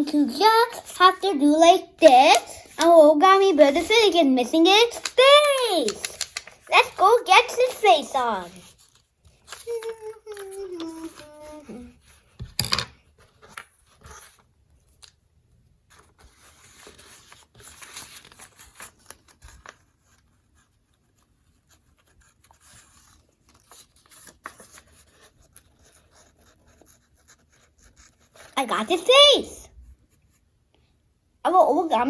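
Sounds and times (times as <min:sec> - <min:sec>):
paper rustling and scratching: 0:02.1 - 0:12.4, 0:13.0 - 0:15.2, 0:15.8 - 0:28.6.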